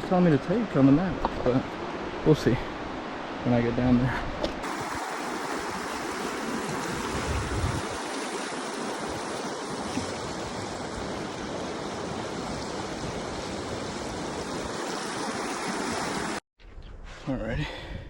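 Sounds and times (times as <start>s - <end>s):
river rushing: 4.6s - 16.4s.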